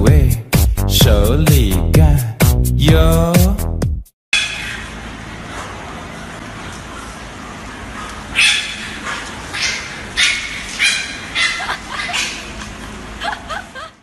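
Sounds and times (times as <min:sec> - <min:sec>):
puppies yapping: 0:04.4 - 0:13.9.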